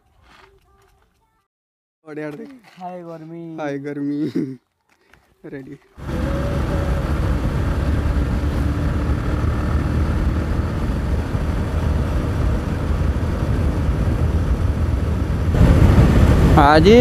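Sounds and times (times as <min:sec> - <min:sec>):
motorcycle engine running: 0:06.0 - 0:17.0
wind and road noise rumble: 0:06.0 - 0:17.0.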